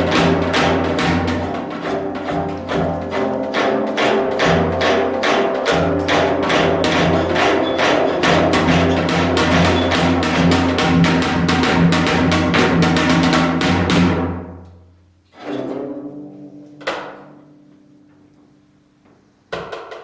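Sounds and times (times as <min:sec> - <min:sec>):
fast drum strikes: 0:00.0 - 0:14.6.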